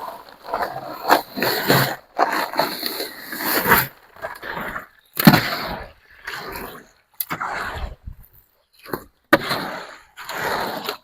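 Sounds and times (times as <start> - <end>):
hoe scraping wet concrete: 0.0 - 8.0, 8.8 - 11.0.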